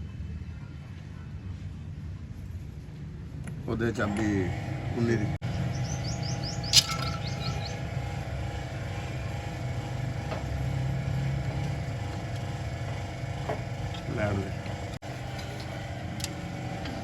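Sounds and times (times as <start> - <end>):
car engine idling: 4.1 - 17.0
bird chirping: 5.4 - 7.9.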